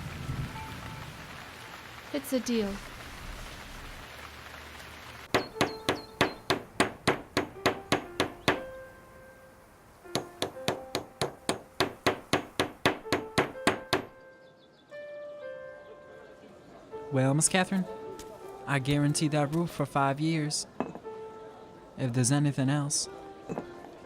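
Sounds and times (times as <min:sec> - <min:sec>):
hammer driving nails: 0:05.3 - 0:08.7, 0:10.2 - 0:14.1.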